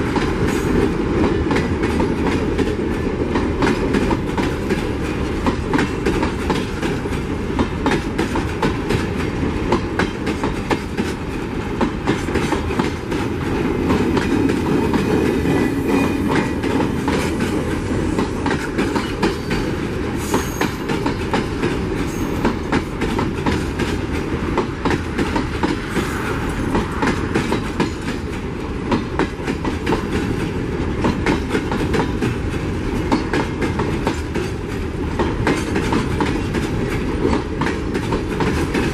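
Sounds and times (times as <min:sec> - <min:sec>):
freight train rattling past: 0:00.0 - 0:38.9.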